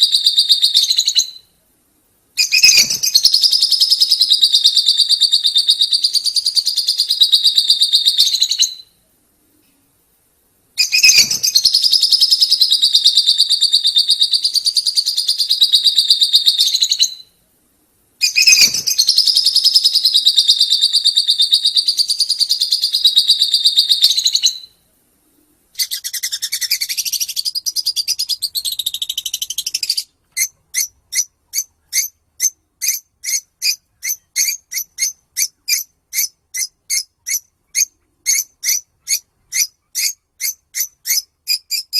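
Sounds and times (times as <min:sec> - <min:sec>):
sharp bird chirps: 0:00.0 - 0:01.6, 0:02.4 - 0:09.0, 0:10.8 - 0:17.4, 0:18.2 - 0:24.8, 0:25.7 - 0:41.9
lovebird chattering trills: 0:02.4 - 0:08.9, 0:10.8 - 0:17.2, 0:18.2 - 0:24.7, 0:25.8 - 0:41.9.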